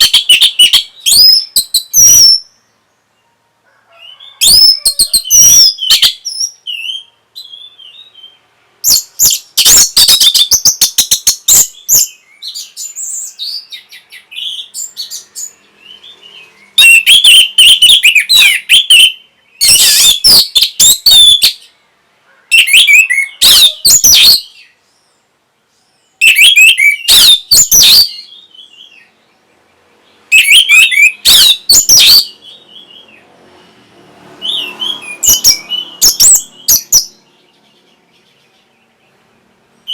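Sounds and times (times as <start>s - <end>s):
thrush singing whistled phrases: 0.0s - 2.6s, 4.1s - 21.7s, 22.5s - 24.8s, 26.2s - 29.1s, 30.3s - 33.2s, 34.4s - 37.2s.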